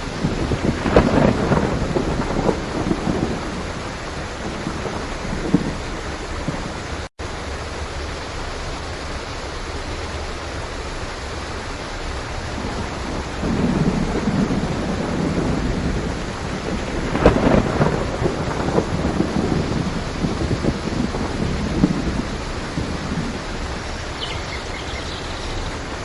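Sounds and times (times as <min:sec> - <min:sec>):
thunder rumbling: 0:00.0 - 0:07.1, 0:12.3 - 0:26.0
heavy rain: 0:00.0 - 0:26.0.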